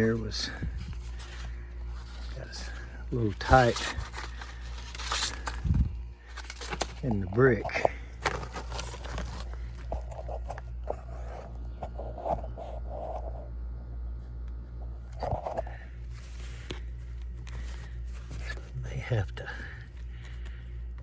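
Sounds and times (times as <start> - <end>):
steady low hum: 0.0 - 21.0
handling scrapes and clicks: 0.9 - 13.2.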